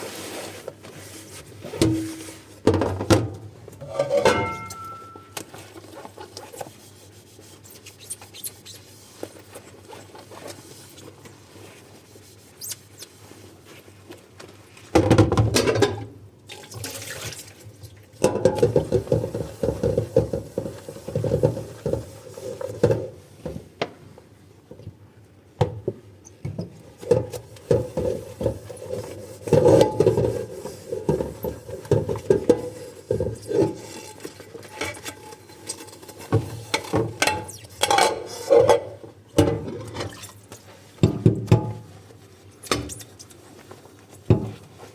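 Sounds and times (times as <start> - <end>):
dishes being scrubbed and handled: 3.8 - 11.0, 17.2 - 23.2, 27.0 - 44.9.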